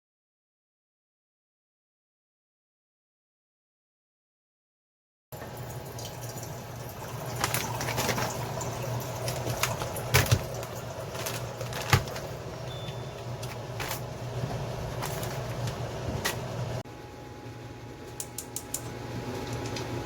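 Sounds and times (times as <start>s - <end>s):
steady low hum: 8.6s - 20.0s.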